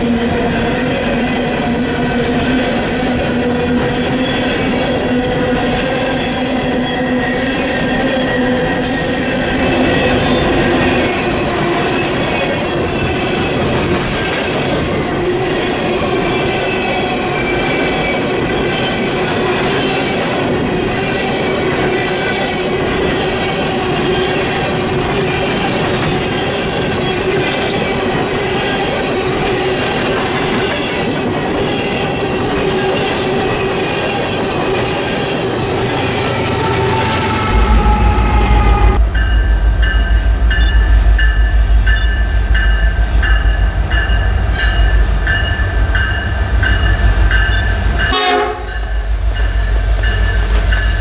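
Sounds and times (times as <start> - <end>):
freight train wheels rumbling: 0.0 - 51.0
whining tones: 34.8 - 42.2.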